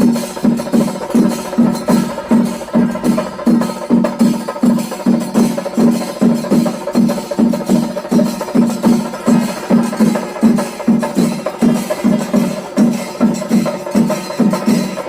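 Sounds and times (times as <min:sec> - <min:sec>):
drum ensemble beating steady rhythm: 0:00.0 - 0:15.0.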